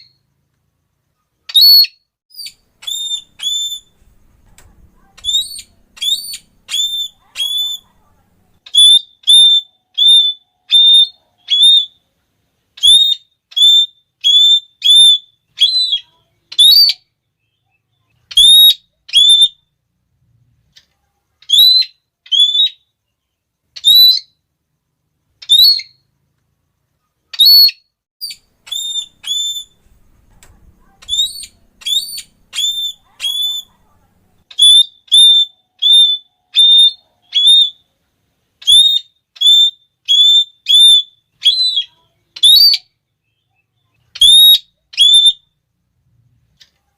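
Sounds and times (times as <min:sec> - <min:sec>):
parrot shrill whistled call: 0:01.5 - 0:04.1, 0:05.2 - 0:07.8, 0:08.7 - 0:12.0, 0:12.8 - 0:17.1, 0:18.3 - 0:19.6, 0:21.4 - 0:22.9, 0:23.8 - 0:24.4, 0:25.4 - 0:26.0, 0:27.3 - 0:29.8, 0:30.8 - 0:33.7, 0:34.5 - 0:37.9, 0:38.6 - 0:43.0, 0:44.1 - 0:45.6.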